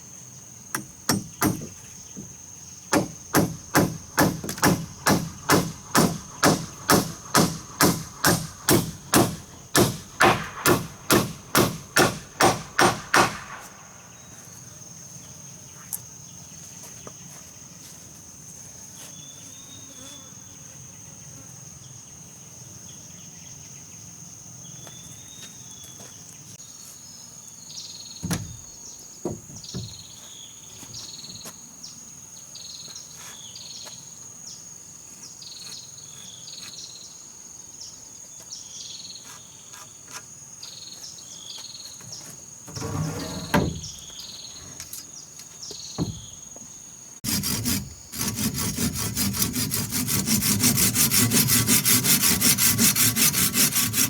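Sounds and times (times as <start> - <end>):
wood knocks: 0.8 - 13.8, 28.2 - 30.1, 42.8 - 44.1, 46.0 - 46.4
hand saw cutting wood: 2.9 - 13.8, 42.7 - 44.9, 47.2 - 54.0.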